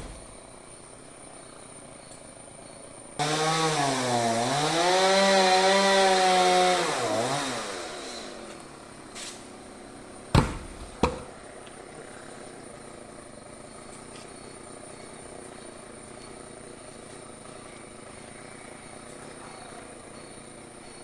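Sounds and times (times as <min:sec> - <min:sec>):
loud sharp knocks: 0:00.0 - 0:00.3, 0:10.4 - 0:11.4.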